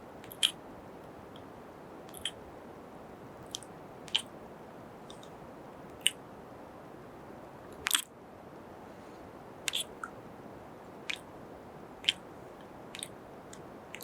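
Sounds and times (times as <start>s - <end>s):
faint steady hiss: 0.0s - 14.0s
kiss sounds and lip smacks: 0.3s - 0.6s, 2.1s - 2.4s, 7.8s - 8.1s, 9.7s - 10.2s, 11.1s - 11.3s.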